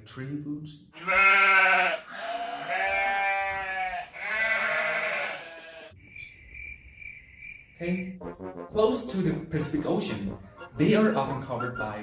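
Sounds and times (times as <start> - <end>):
drawn-out animal calls: 1.0 - 5.9.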